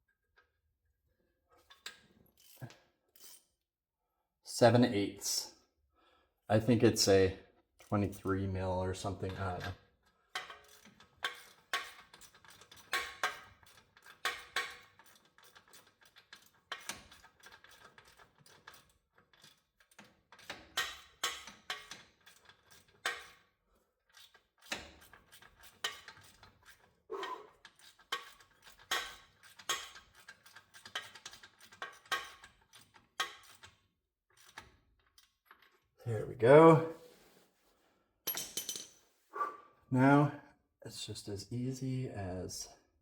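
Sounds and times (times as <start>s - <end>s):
wrench clinking on metal: 10.4s - 23.4s, 24.2s - 33.8s, 38.3s - 39.0s.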